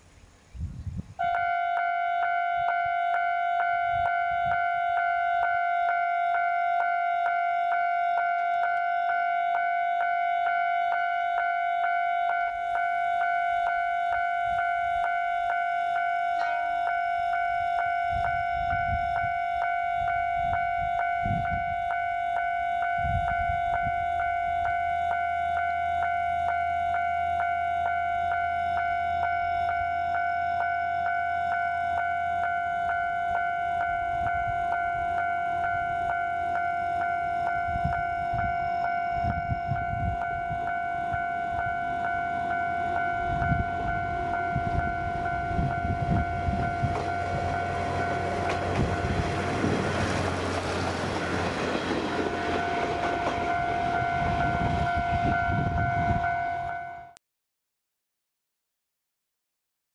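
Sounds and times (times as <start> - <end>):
diesel railcar running: 1.2 - 57.2
level crossing bell ringing: 1.4 - 49.6, 51.2 - 57.2
wheels thumping over rail joints: 46.1 - 54.5.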